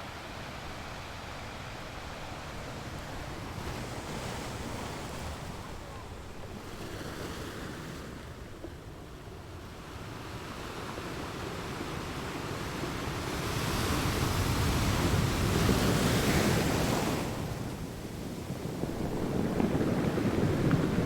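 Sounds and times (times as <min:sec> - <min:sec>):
ocean waves breaking on shore: 0:00.0 - 0:21.0
wind on microphone: 0:13.9 - 0:21.0.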